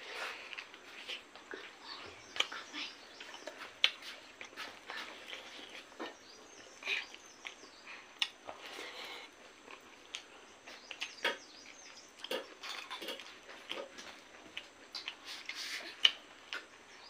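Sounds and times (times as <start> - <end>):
person chewing and lip-smacking: 3.2 - 6.0, 7.0 - 8.7, 9.6 - 16.8.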